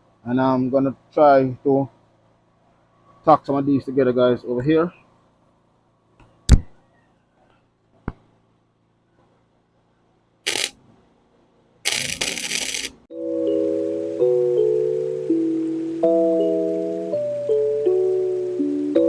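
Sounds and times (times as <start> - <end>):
crackling welding arc: 10.5 - 10.8, 11.9 - 13.0.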